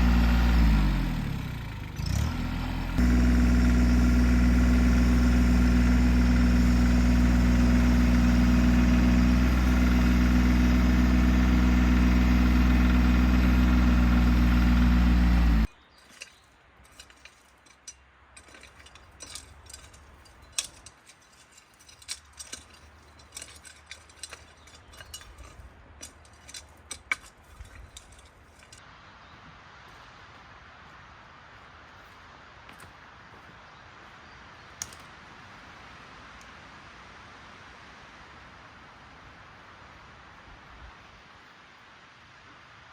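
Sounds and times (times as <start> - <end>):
motor engine running: 0.0 - 15.7.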